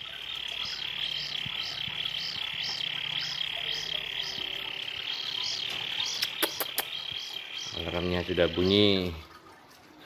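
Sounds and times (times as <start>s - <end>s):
kingfisher chick calling: 0.2s - 7.9s.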